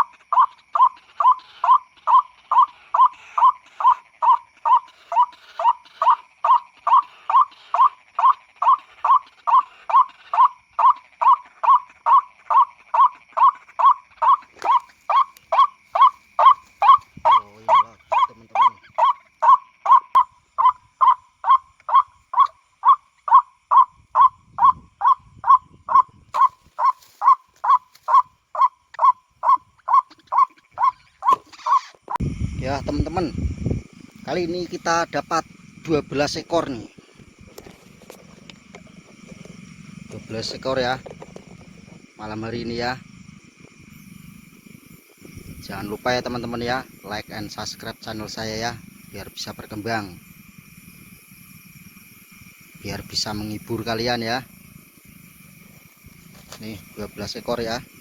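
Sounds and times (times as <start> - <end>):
bird lure call through speaker: 0.0 - 32.0.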